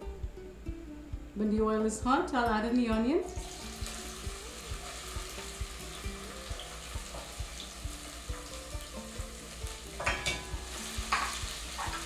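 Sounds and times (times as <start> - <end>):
soft background music: 0.0 - 12.0
vegetables sizzling in oil: 3.2 - 12.0.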